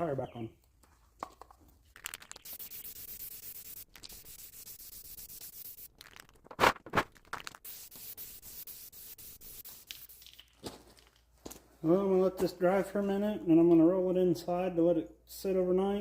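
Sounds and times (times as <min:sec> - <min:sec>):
aerosol can spraying hiss: 0:02.3 - 0:05.9, 0:07.6 - 0:10.5.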